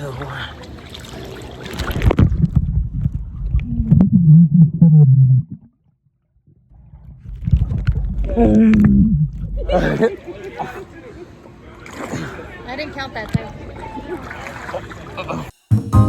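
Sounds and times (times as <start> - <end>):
underwater rumbling and gurgling: 1.6 - 10.1
muffled underwater hums: 2.5 - 5.8, 6.7 - 10.0.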